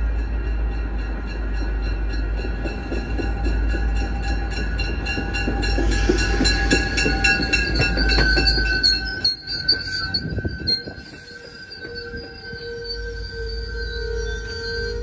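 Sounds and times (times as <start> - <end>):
train rumble: 0.0 - 15.0
wheels clicking over rail joints: 1.6 - 12.4.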